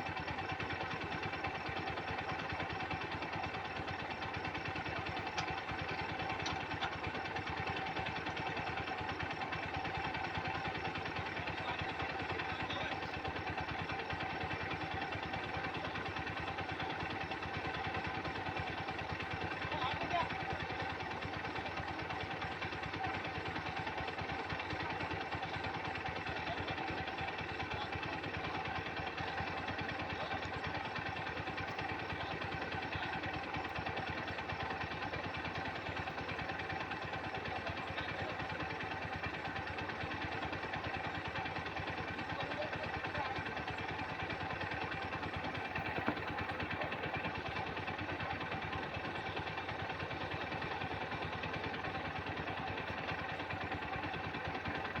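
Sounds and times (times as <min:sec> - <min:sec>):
engine knock: 0:00.0 - 0:55.0
tractor diesel engine running: 0:00.0 - 0:55.0.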